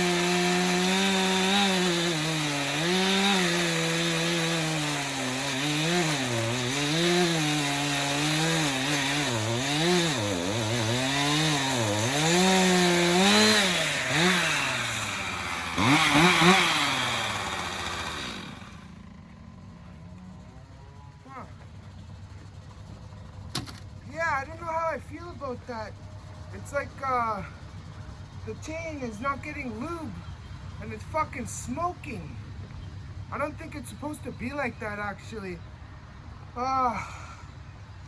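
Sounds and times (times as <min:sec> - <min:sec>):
chainsaw cutting wood: 0:00.0 - 0:19.0.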